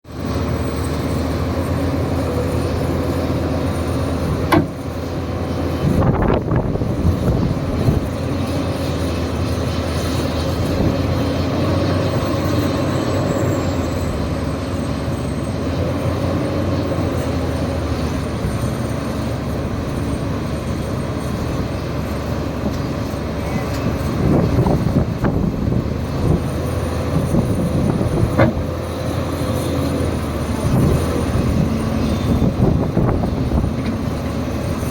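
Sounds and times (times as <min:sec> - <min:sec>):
excavator diesel engine running: 0:00.1 - 0:34.9
steady whine: 0:00.1 - 0:34.9
sharp knocks: 0:04.5 - 0:04.8.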